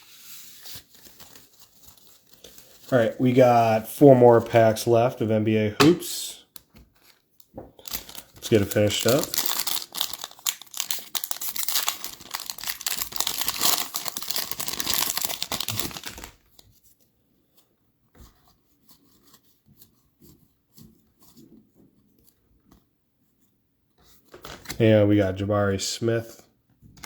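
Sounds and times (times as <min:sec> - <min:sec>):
card pack wrapper tearing: 0:07.8 - 0:16.4.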